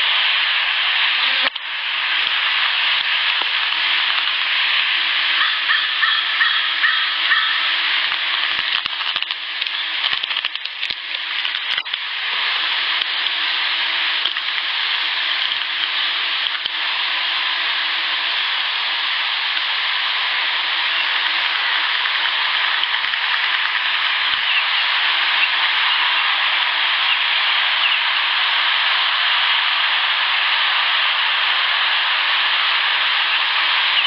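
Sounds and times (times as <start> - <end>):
recorder hiss: 0.0 - 34.0
scattered clicks: 8.0 - 12.0, 14.2 - 14.7, 15.3 - 16.8, 21.2 - 24.5.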